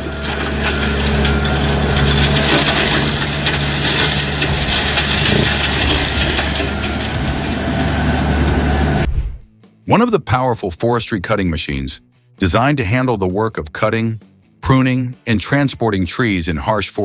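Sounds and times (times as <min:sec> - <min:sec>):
tractor diesel engine running: 0:00.0 - 0:09.4
wood grinding and crushing: 0:00.0 - 0:09.5.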